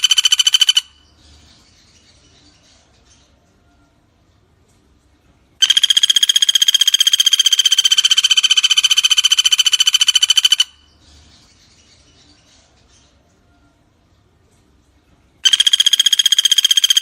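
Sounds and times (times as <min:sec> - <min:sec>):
woodpecker rattling trill: 0:00.0 - 0:01.1, 0:05.6 - 0:10.9, 0:15.4 - 0:17.0.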